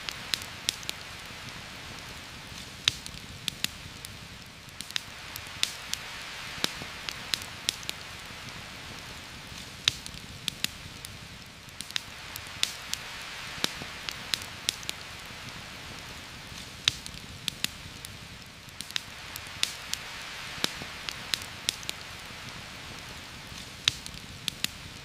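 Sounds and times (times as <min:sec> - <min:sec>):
rain falling through foliage: 0:00.0 - 0:25.0.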